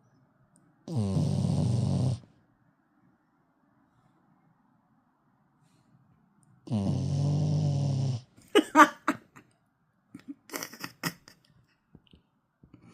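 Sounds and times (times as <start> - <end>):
dog snoring: 0.9 - 2.4, 6.6 - 8.3.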